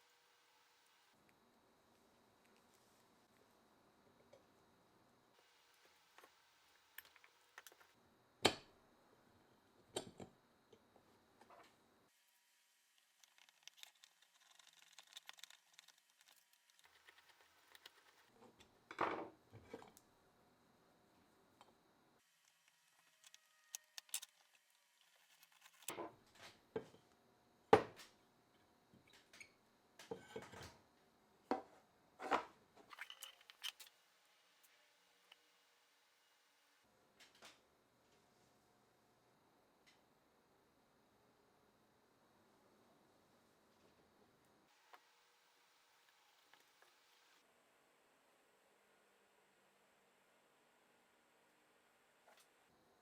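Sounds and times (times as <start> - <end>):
small parts clicking and knocking: 13.0 - 18.8, 22.4 - 26.0, 32.9 - 33.9.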